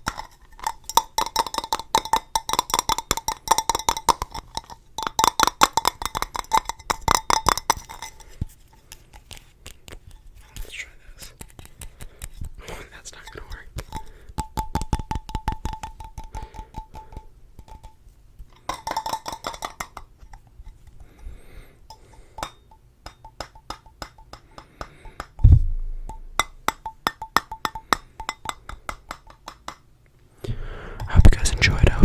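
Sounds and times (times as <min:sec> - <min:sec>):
fingers tapping on hard objects: 0:00.0 - 0:08.2, 0:13.5 - 0:18.0, 0:23.1 - 0:29.9
heavy thump: 0:25.4 - 0:26.6.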